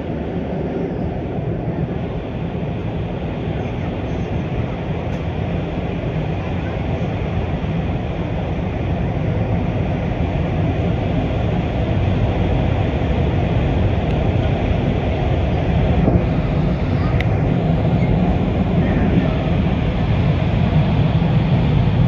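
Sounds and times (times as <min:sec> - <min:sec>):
train rumbling on rails: 0:00.0 - 0:22.0.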